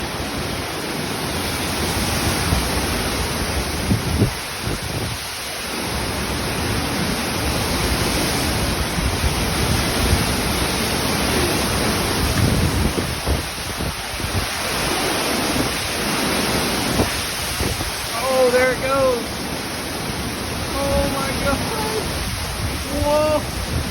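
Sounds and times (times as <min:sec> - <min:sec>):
heavy rain: 0:00.0 - 0:23.9
strong wind gusting: 0:00.0 - 0:23.9
wind buffeting microphone: 0:00.0 - 0:23.9.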